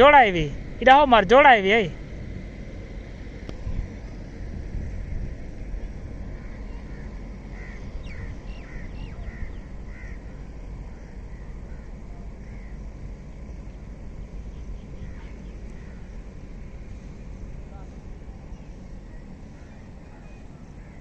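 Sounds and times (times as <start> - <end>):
low rumble: 0.0 - 21.0
harsh caw-like bird calls: 6.2 - 13.5, 14.5 - 16.4, 19.1 - 21.0.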